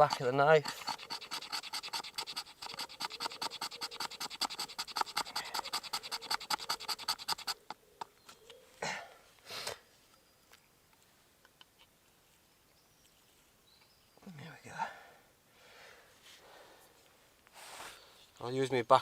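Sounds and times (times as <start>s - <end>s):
knife scraping along wood: 0.0s - 8.2s.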